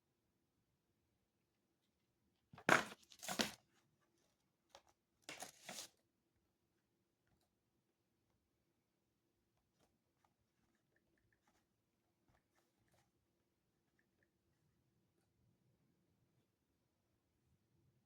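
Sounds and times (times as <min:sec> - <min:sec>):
paper rustling: 0:02.7 - 0:03.6, 0:05.3 - 0:05.9.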